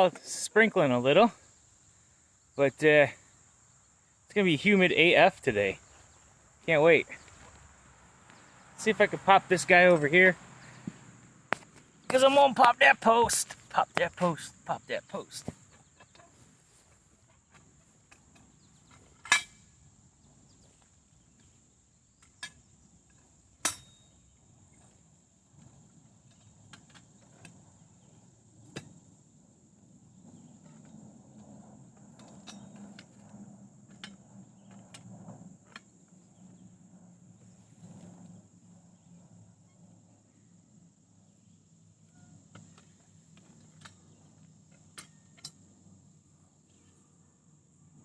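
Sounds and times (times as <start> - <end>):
insect chirr: 0.0 - 48.0.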